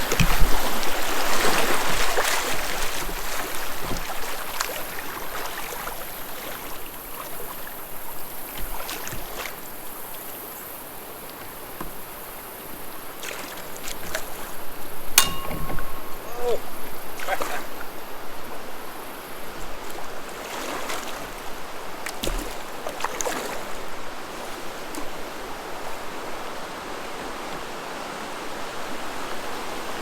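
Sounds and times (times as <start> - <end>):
knocks on kayak: 0.0 - 0.9, 15.2 - 16.6
creek water running: 0.0 - 30.0.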